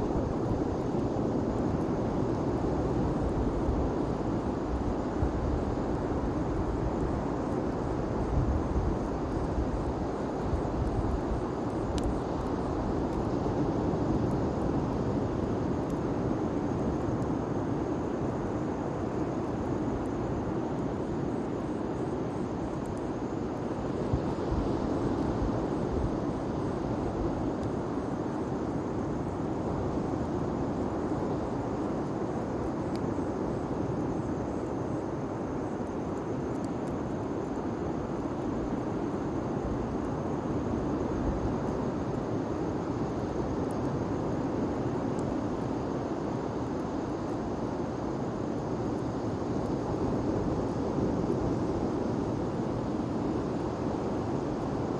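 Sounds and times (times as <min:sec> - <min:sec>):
faint fire crackles: 0:00.0 - 0:54.9.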